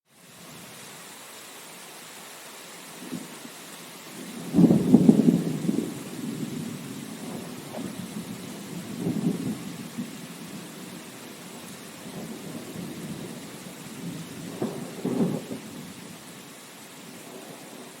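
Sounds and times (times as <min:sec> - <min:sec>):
steady rain hiss: 0:00.1 - 0:18.0
thunder rolling: 0:04.2 - 0:16.0.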